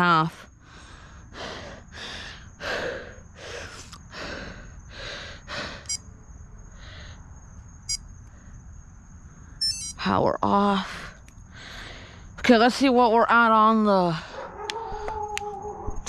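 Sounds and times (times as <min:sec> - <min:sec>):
heavy breathing: 0:00.6 - 0:06.0
short high electronic beeps: 0:09.6 - 0:10.0.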